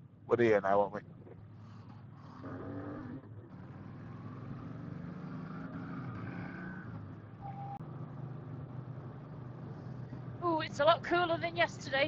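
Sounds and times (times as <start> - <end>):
road and wind noise: 0.0 - 12.0
short high beep: 7.4 - 7.8.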